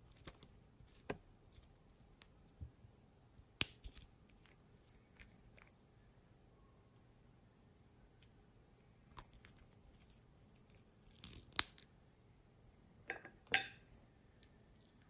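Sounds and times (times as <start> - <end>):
slime clicking and crackling: 9.2 - 11.8.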